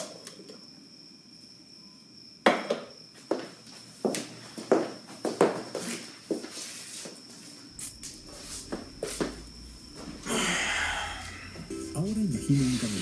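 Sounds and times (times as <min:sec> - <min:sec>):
footsteps across a room: 0:03.1 - 0:09.4.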